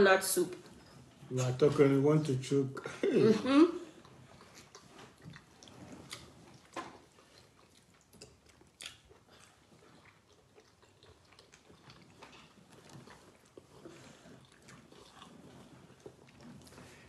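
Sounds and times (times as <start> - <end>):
wet chewing and mouth smacks: 4.0 - 17.0.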